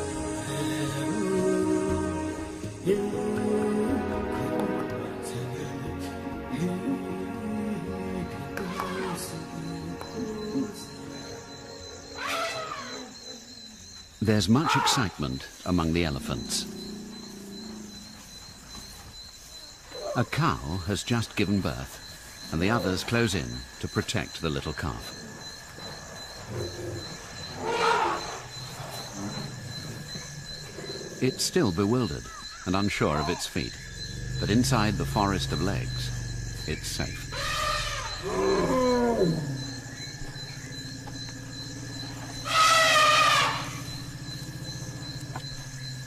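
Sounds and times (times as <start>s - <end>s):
insects trilling: 0.0s - 46.0s
elephant high-pitched call: 12.1s - 13.4s, 27.5s - 28.4s, 36.8s - 39.8s, 42.1s - 44.0s
elephants rumbling calls: 12.1s - 13.5s, 14.6s - 18.6s, 25.0s - 46.0s
elephant roaring call: 12.2s - 13.5s, 16.0s - 18.2s, 26.4s - 31.4s, 33.1s - 46.0s.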